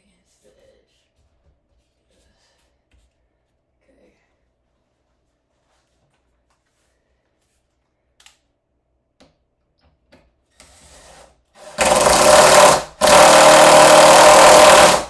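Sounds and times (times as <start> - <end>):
power drill driving screw into wood: 10.6 - 15.0.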